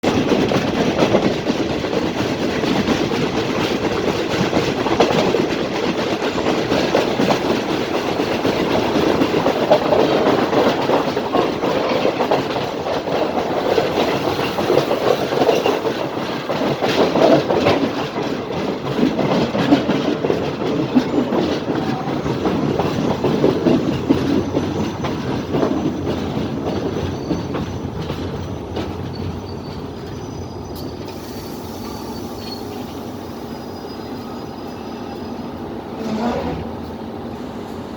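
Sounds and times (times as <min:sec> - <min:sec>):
train wheels clattering over rails: 0:00.0 - 0:37.9.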